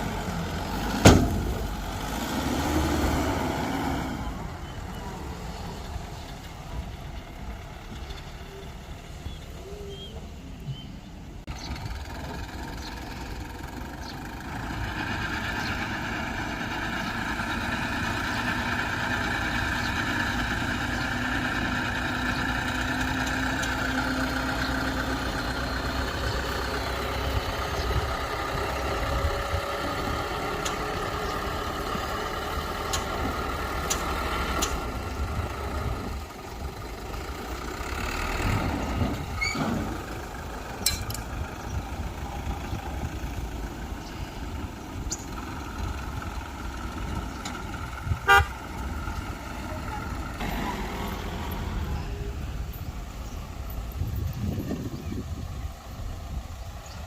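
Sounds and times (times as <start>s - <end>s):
heavy diesel engine running: 0.0s - 57.0s
sharp metallic clicks: 33.8s - 34.8s.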